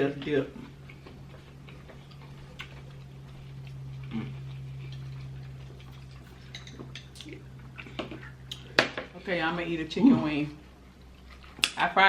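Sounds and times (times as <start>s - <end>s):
low electrical hum: 0.0s - 12.0s
chewing and mouth sounds: 0.5s - 8.8s, 10.6s - 11.8s.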